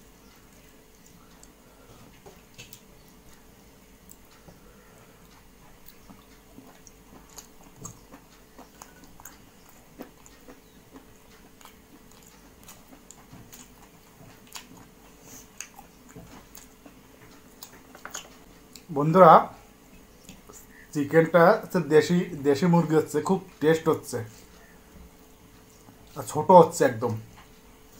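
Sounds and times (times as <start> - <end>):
person chewing food: 0.3 - 18.9, 19.8 - 20.9.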